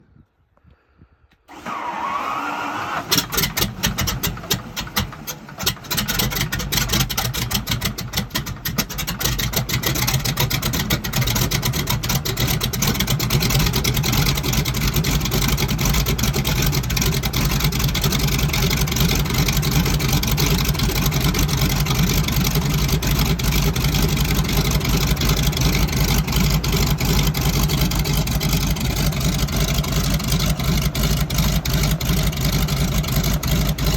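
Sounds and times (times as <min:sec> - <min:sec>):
starter whine: 0:01.5 - 0:33.9.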